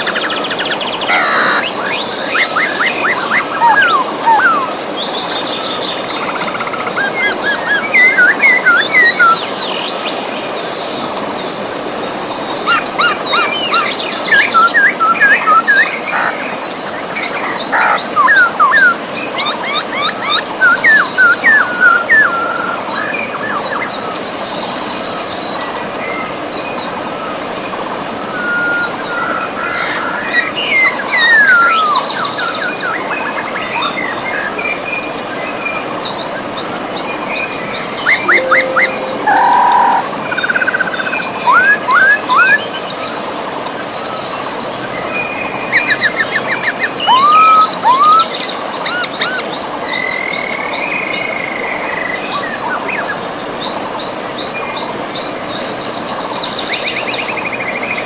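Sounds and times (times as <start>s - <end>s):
river water running: 0.0s - 58.0s
birds chirping and trilling: 0.2s - 4.8s.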